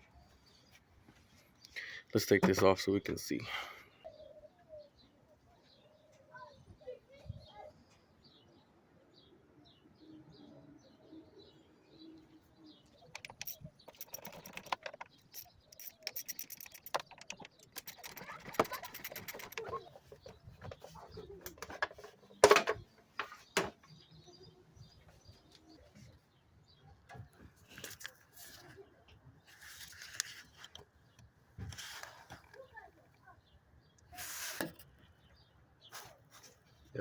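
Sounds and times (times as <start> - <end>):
birds chirping faintly: 0.0 - 37.0
plastic parts clicking and rustling: 13.0 - 23.7, 29.7 - 32.6.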